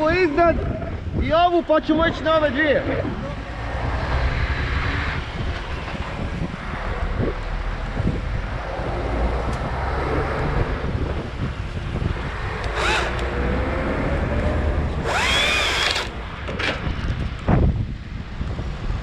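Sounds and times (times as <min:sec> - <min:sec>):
wind rumble on microphone: 0:00.0 - 0:19.0
chainsaw revving: 0:12.6 - 0:14.0, 0:15.0 - 0:16.2.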